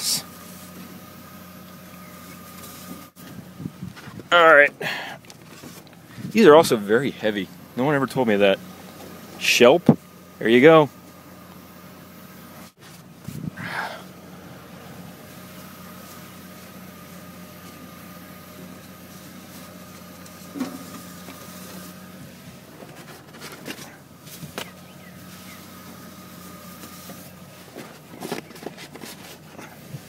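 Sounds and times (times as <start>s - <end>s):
car idling hum: 0.0s - 30.0s
handling rustles: 5.2s - 6.3s, 18.6s - 30.0s.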